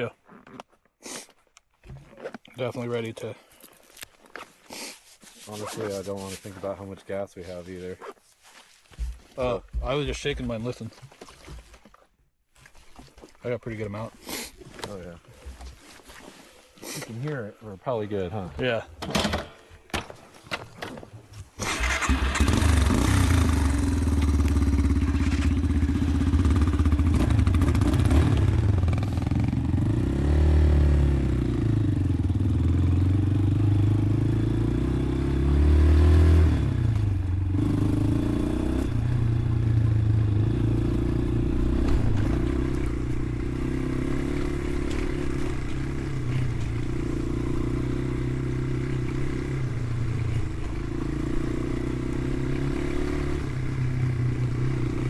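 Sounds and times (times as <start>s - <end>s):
dirt bike engine revving: 21.6s - 55.0s.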